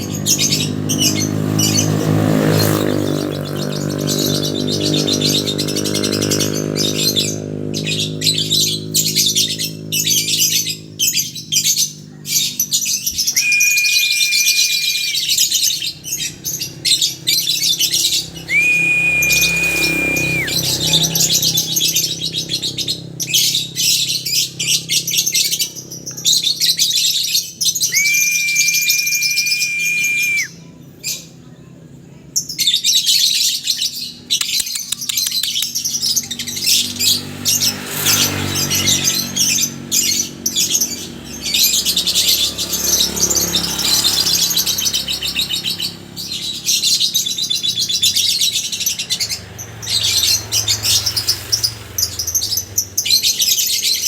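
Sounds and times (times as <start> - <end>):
lovebirds chattering: 0.0 - 31.6, 32.2 - 54.0
steady high tone: 13.3 - 15.3, 18.5 - 20.6.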